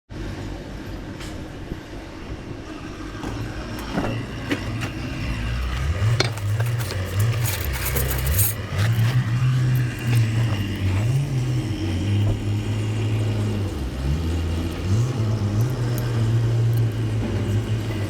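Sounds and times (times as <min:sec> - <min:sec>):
engine running low: 0:00.1 - 0:18.0
metallic clinks and knocks: 0:05.6 - 0:11.6.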